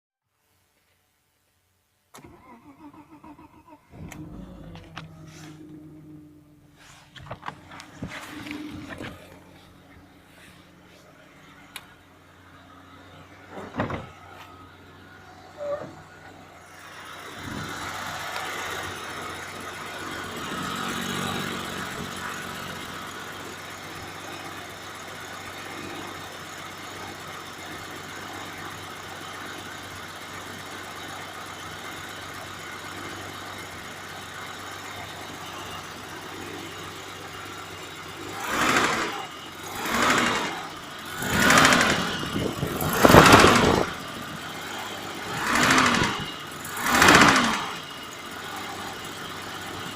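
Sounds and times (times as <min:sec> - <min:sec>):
engine revving: 0:02.2 - 0:12.0, 0:12.9 - 0:24.6, 0:36.3 - 0:49.9
car engine idling with knock: 0:07.0 - 0:10.8, 0:13.4 - 0:14.6.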